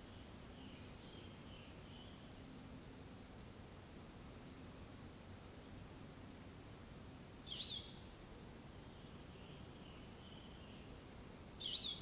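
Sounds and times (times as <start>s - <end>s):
low background noise: 0.0s - 12.0s
high thin bird song: 7.5s - 8.0s, 11.6s - 12.0s.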